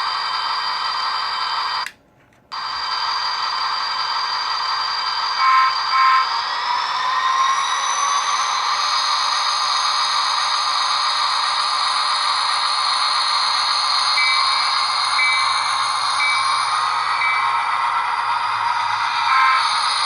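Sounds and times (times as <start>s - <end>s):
model locomotive diesel hum: 0.0s - 20.0s
locomotive bell ringing: 14.2s - 20.0s.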